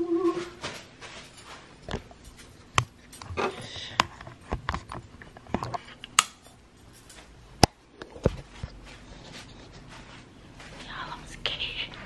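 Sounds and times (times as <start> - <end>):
knocks and clinks of handling: 1.0 - 3.7, 4.7 - 7.3.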